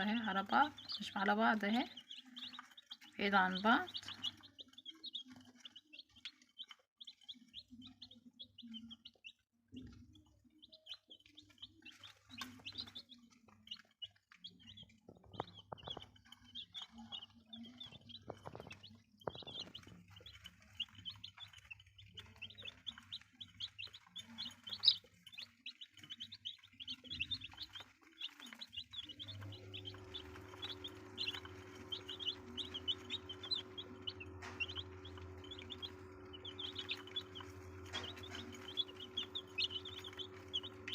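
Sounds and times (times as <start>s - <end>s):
chicks peeping: 0.0s - 40.9s
steady low hum: 29.2s - 40.9s.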